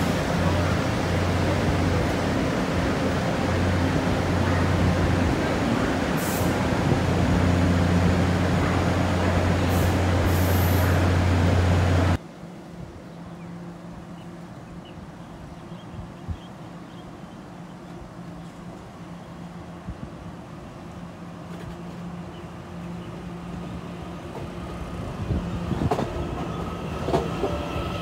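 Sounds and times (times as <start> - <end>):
faint station background: 0.0 - 28.0
short high-pitched hisses: 9.6 - 11.0.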